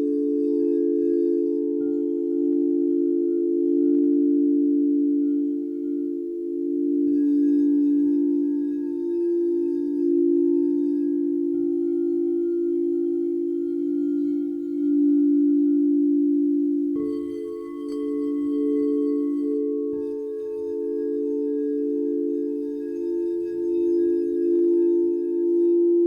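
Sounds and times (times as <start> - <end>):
singing bowls ringing: 0.0 - 26.0
singing bowl struck: 5.9 - 26.0.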